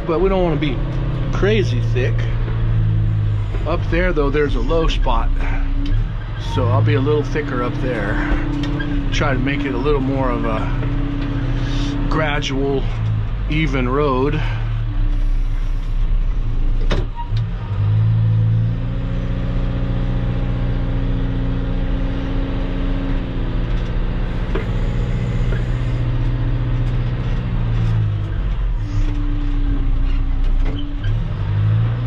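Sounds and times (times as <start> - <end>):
machine engine running under load: 22.0 - 31.2.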